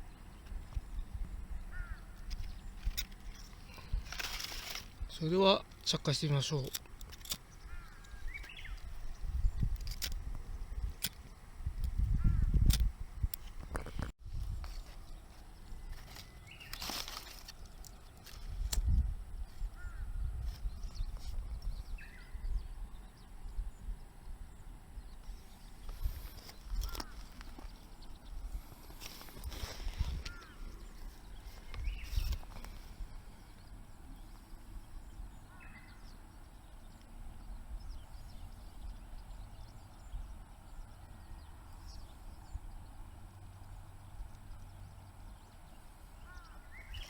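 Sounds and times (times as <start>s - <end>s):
wind buffeting microphone: 0.0s - 4.3s, 6.9s - 14.9s, 18.2s - 47.0s
faint bird chirps: 14.6s - 47.0s.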